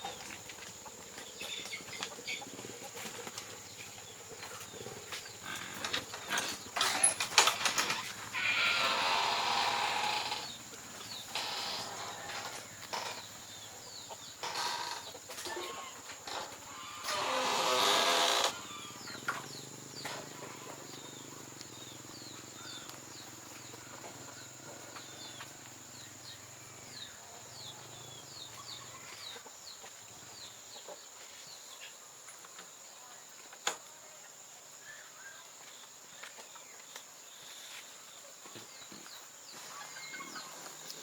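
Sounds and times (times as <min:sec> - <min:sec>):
birds chirping: 0:00.0 - 0:32.0
high insect whine: 0:05.3 - 0:28.8.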